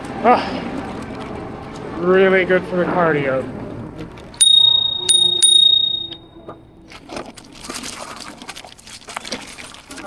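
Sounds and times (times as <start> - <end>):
bicycle bell ringing: 4.4 - 6.2.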